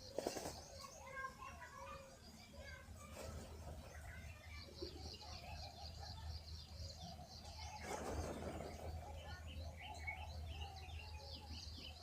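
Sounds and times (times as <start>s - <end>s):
birds chirping: 0.0s - 12.0s
wings flapping: 0.1s - 0.6s, 7.8s - 8.9s.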